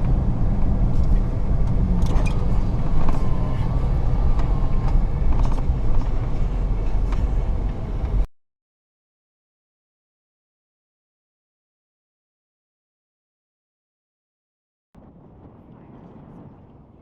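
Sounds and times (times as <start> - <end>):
truck engine and road rumble: 0.0 - 8.3, 15.0 - 17.0.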